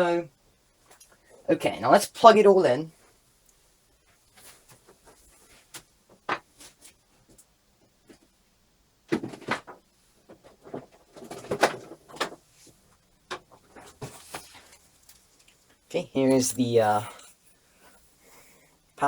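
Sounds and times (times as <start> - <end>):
computer parts clicking and clattering: 9.1 - 12.4.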